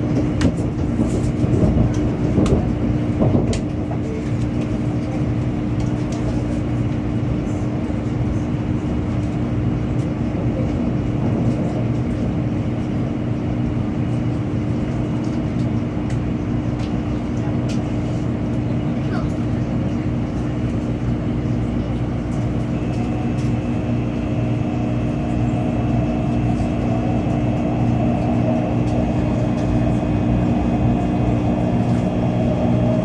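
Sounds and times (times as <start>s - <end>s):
low hum: 21.9s - 33.0s
train rushing noise: 22.3s - 33.0s.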